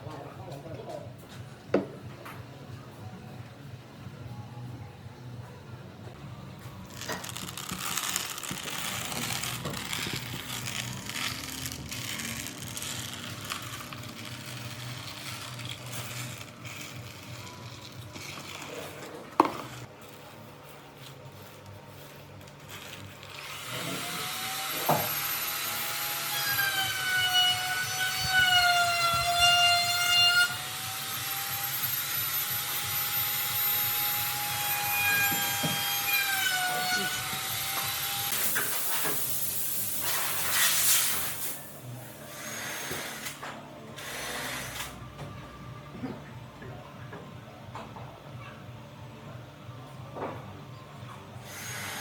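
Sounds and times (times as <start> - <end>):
quiet work noises: 0.0 - 52.0
power tool motor whining: 6.9 - 19.9, 23.2 - 40.0.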